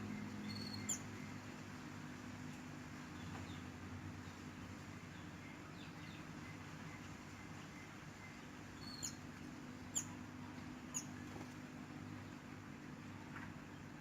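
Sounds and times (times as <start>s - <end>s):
small songbird chirping: 0.0s - 1.5s, 3.1s - 11.3s
steady low hum: 0.0s - 14.0s.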